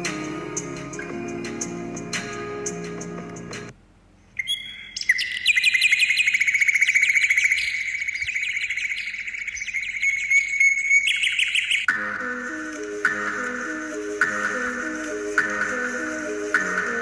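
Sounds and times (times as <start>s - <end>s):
songbird trilling: 4.4s - 11.9s.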